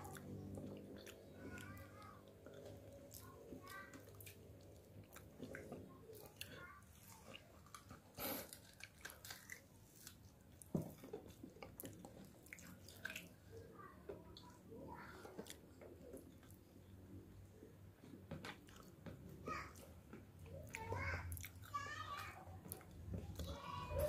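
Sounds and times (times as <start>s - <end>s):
person chewing meat: 0.0s - 13.5s, 20.6s - 23.6s.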